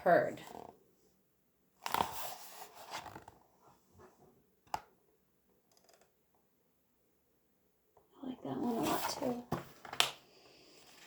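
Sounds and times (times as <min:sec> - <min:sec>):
paper page rustling: 0:01.8 - 0:03.4, 0:08.7 - 0:11.0.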